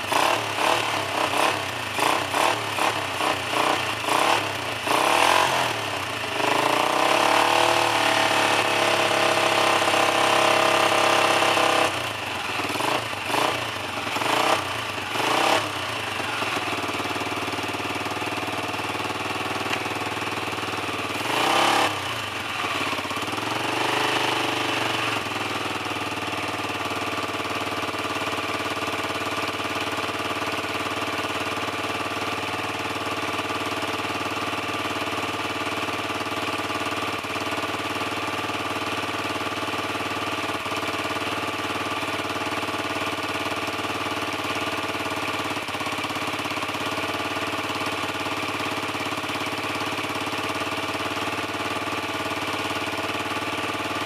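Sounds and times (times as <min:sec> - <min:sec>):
dirt bike engine revving: 0:00.0 - 0:27.0
dirt bike engine idling: 0:00.0 - 0:54.0.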